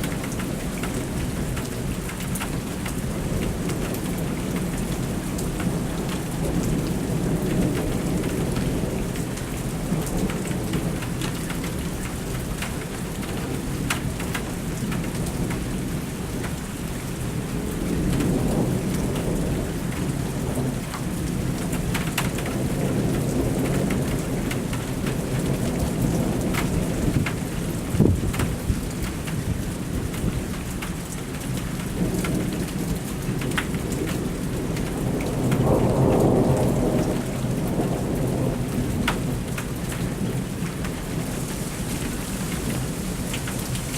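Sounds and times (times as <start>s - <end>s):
heavy rain falling: 0.0s - 43.9s
thunder rumbling: 17.7s - 29.6s, 33.4s - 42.0s.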